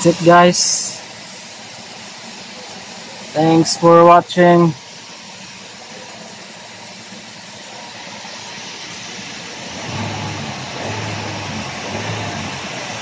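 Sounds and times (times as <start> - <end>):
car engine idling: 0.0 - 13.0
deep hum: 9.7 - 13.0.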